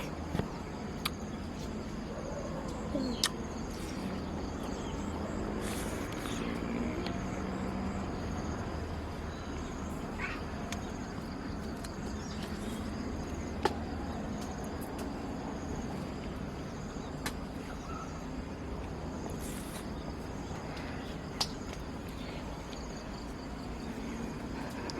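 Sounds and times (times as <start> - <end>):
insects chirring: 0.0 - 24.9.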